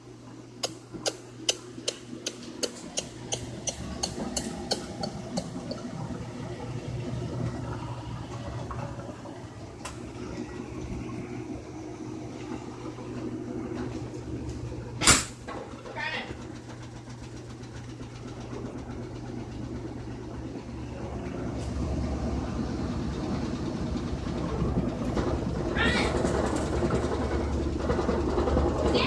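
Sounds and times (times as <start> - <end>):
washing machine water rushing: 0.0 - 29.0
washing machine clicks: 0.6 - 6.1.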